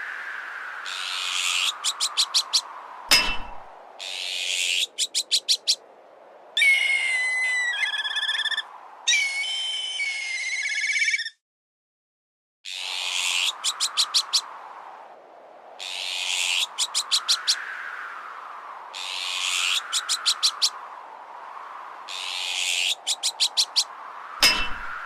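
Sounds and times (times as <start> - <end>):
harsh bird alarm calls: 0.9 - 3.4, 4.0 - 5.8, 6.6 - 11.4, 12.7 - 14.5, 15.8 - 17.6, 19.0 - 20.8, 22.1 - 25.0
rising and falling whistle: 6.6 - 11.3.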